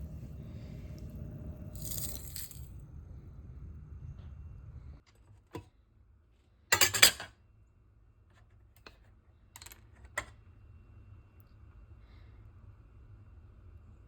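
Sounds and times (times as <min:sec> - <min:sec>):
utensils and dishes clinking: 0:01.8 - 0:02.7, 0:06.7 - 0:07.3.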